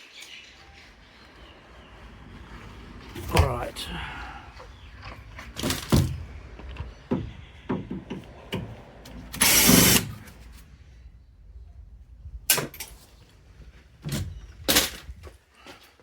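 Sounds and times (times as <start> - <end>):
power drill running: 9.3 - 10.3.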